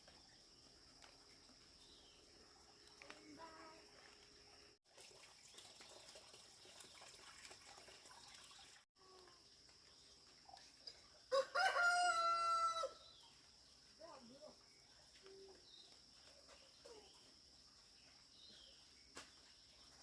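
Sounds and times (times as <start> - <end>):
rooster crowing: 11.3 - 13.0.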